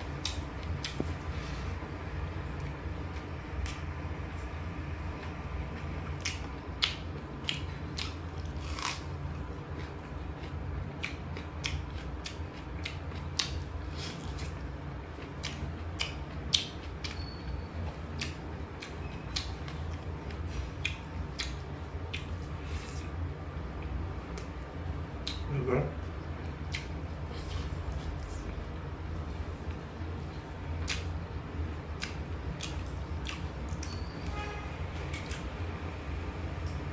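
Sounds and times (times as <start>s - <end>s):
steady low hum: 0.0s - 36.9s
person chewing wetly: 0.1s - 1.2s, 5.7s - 23.3s, 26.4s - 28.6s, 30.2s - 31.2s, 31.9s - 34.0s.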